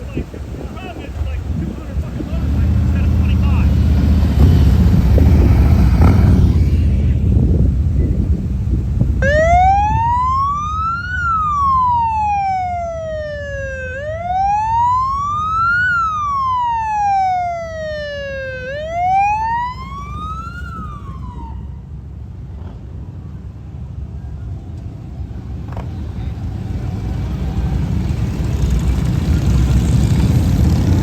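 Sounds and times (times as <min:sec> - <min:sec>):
vehicle engines rumbling: 0:00.0 - 0:31.0
emergency siren wailing: 0:09.2 - 0:22.0.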